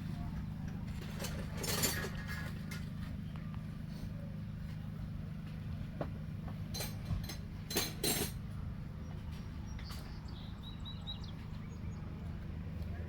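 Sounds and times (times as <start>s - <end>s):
low engine hum: 0.0s - 13.0s
sharp clinks and knocks: 6.7s - 8.4s.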